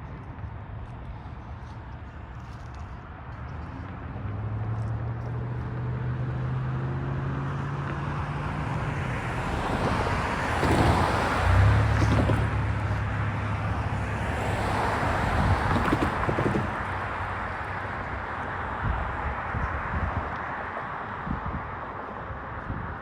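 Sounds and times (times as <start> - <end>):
train wheels rolling on rails: 9.5 - 13.0, 14.8 - 17.3.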